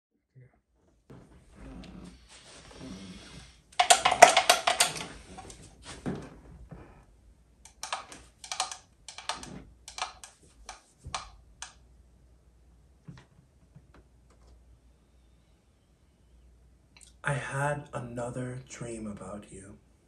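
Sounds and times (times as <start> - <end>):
rapid clicking and tapping: 3.8 - 5.5, 7.6 - 11.8.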